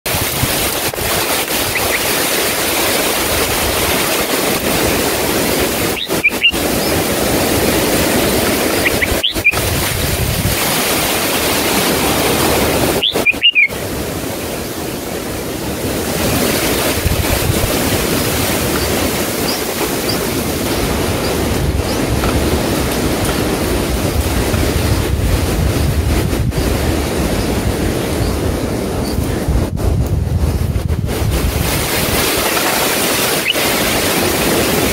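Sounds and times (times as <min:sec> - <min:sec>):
high rising bird chirps: 0:01.6 - 0:02.2, 0:05.8 - 0:07.0, 0:08.6 - 0:09.7, 0:12.9 - 0:13.8.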